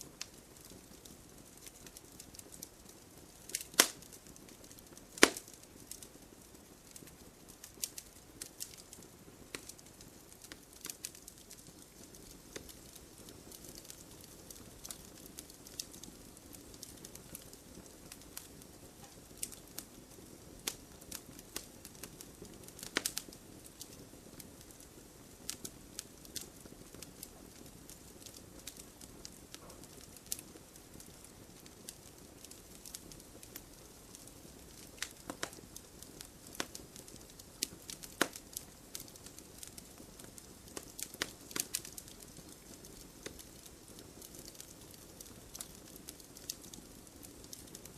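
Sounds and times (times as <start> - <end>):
burning wood popping: 0.0 - 47.9.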